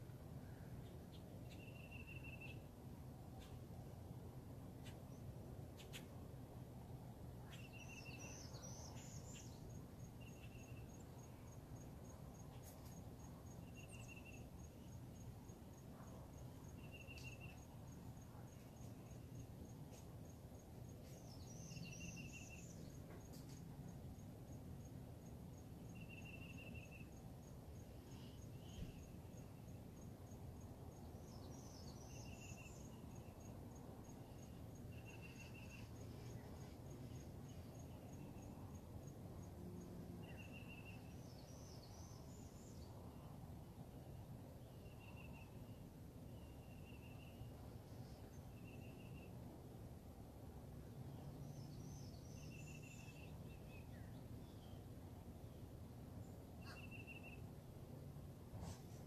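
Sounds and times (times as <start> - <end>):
insects chirping: 7.5 - 49.4, 51.1 - 54.8
short insect trills: 16.6 - 20.4, 25.5 - 30.4
bird-like call: 56.6 - 57.4.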